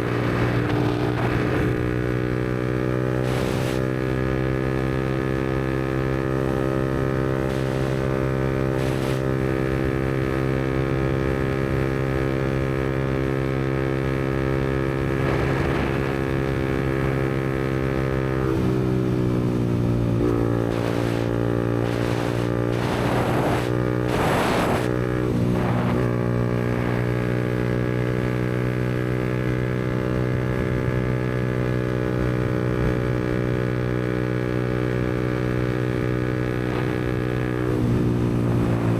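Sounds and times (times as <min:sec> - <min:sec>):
motorcycle engine running: 0:00.0 - 0:38.9
short rushes of noise: 0:03.2 - 0:03.9, 0:07.5 - 0:09.3, 0:20.3 - 0:26.2.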